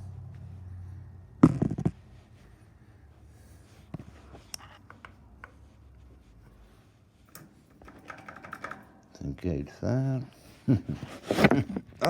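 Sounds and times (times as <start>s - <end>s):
faint low hum: 0.0s - 7.8s.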